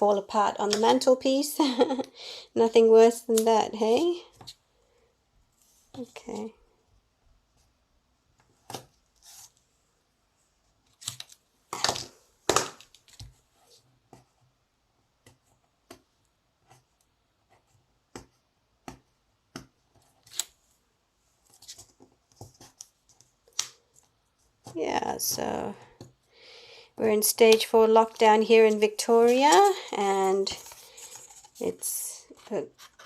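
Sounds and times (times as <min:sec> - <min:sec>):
card stock rustling: 0:27.1 - 0:33.0.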